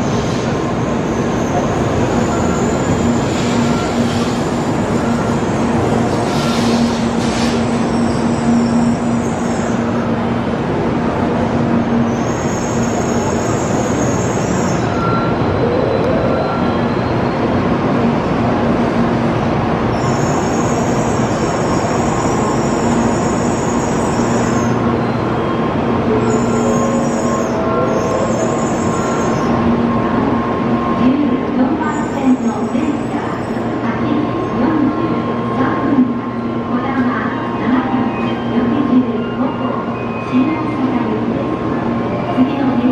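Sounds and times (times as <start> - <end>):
rumble of train wheels: 0.0 - 42.9.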